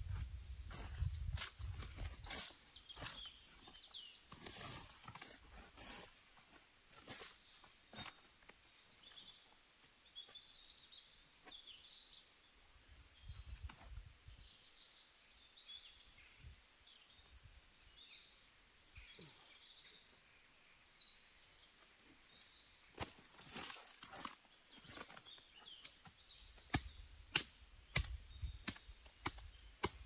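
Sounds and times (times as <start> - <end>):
faint bird chirps and twitters: 0.0 - 30.0.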